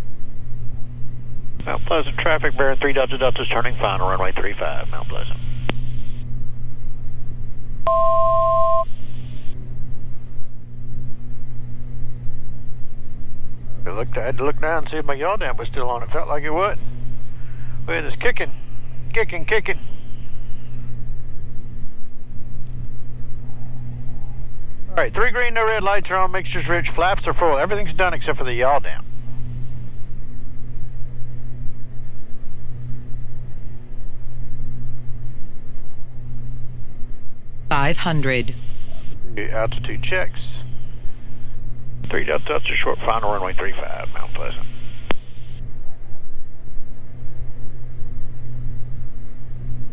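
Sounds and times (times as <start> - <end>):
aircraft engines and propellers droning: 0.0 - 7.9, 8.8 - 49.9
two-tone electronic beep: 7.9 - 8.9.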